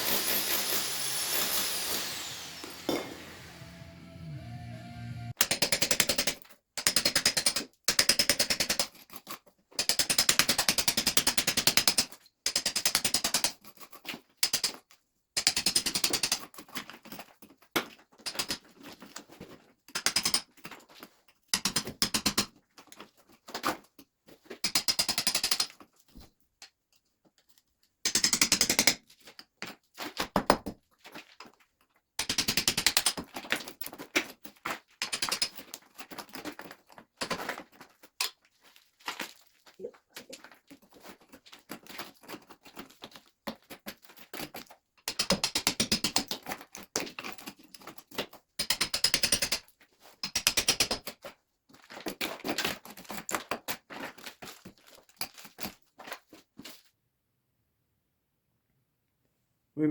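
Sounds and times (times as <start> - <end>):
hammer drill chiseling mortar: 0.0 - 6.3.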